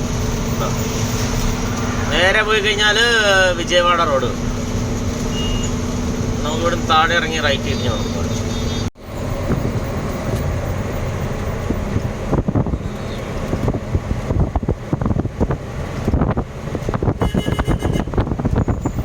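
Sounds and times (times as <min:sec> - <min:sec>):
truck engine: 0:00.0 - 0:17.2
road noise: 0:00.0 - 0:19.0
wind buffeting microphone: 0:08.2 - 0:19.0.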